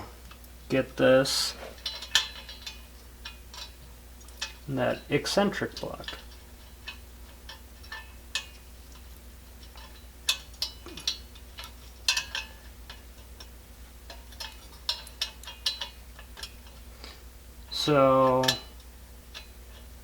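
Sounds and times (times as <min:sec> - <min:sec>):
faint steady hum: 0:00.0 - 0:20.0
small metallic clicks and taps: 0:05.7 - 0:13.5, 0:14.1 - 0:16.8, 0:18.2 - 0:19.9.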